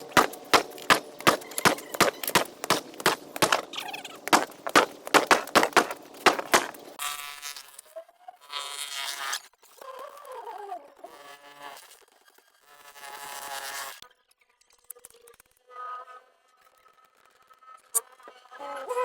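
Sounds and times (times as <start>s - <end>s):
heavy blows on concrete: 0.0s - 6.8s
steady noisy machine sound: 0.0s - 7.0s.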